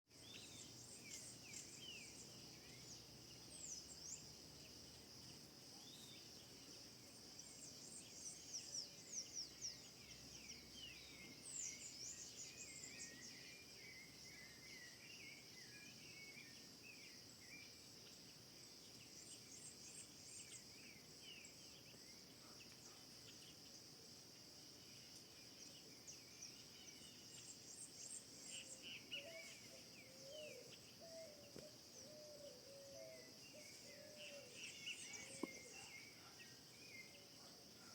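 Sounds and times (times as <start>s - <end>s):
bird chirps: 25.7s - 37.9s.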